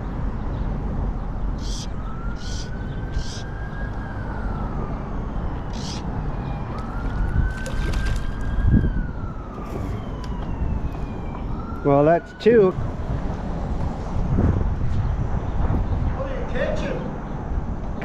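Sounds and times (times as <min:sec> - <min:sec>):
distant siren wailing: 0:01.2 - 0:14.2.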